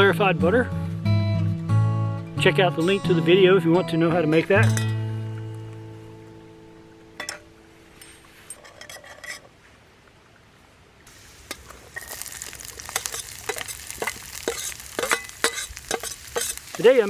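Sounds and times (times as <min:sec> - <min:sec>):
food sizzling in a pan: 0:11.1 - 0:17.0
utensil tapping a pan: 0:11.5 - 0:17.0.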